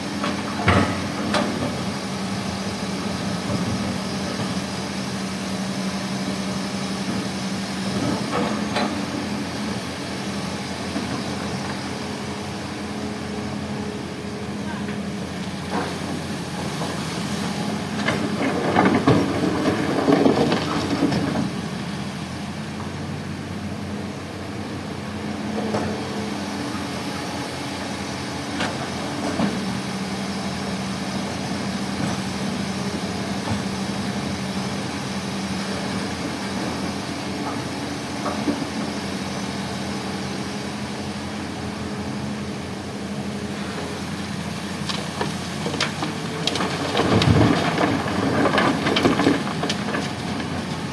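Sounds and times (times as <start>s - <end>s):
diesel machinery humming: 0.0s - 50.9s.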